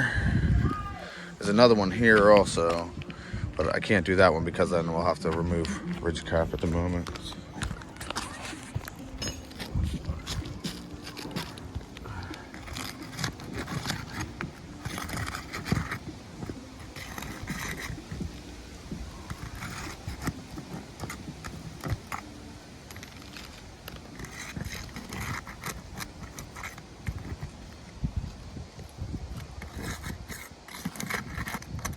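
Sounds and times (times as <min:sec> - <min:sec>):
roof shingle scraping and crackling: 0:00.0 - 0:31.9.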